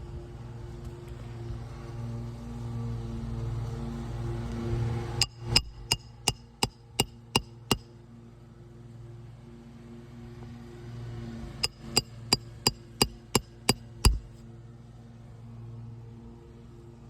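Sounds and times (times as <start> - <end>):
hammer striking metal: 5.2 - 7.8, 11.6 - 14.3.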